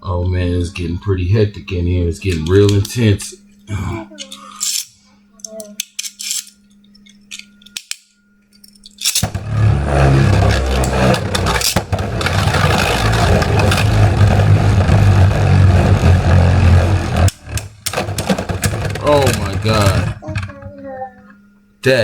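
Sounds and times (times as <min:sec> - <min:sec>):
spinning tops scraping rattle: 0:08.9 - 0:20.2
spinning tops hitting: 0:08.9 - 0:20.3.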